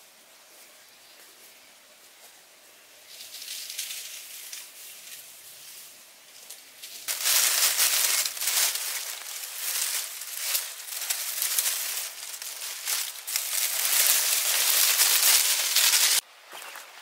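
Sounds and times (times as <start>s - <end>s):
close crinkling and rustling: 6.4s - 16.2s.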